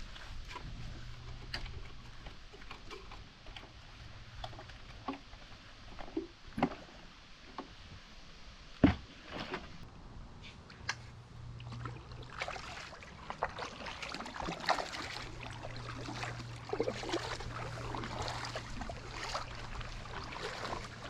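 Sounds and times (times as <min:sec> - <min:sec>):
steady low hum: 0:09.8 - 0:21.0
paddle splashing in water: 0:11.6 - 0:21.0.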